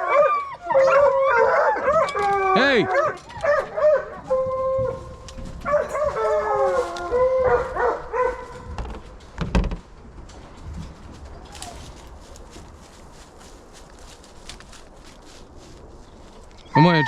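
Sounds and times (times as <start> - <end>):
dog howling: 0.0 - 8.5
low thump: 8.7 - 10.0.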